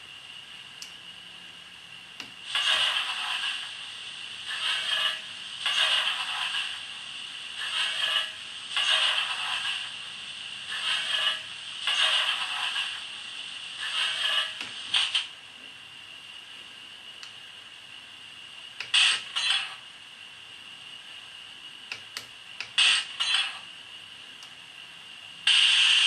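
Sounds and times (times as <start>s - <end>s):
model steam locomotive chuffs: 2.4s - 15.3s.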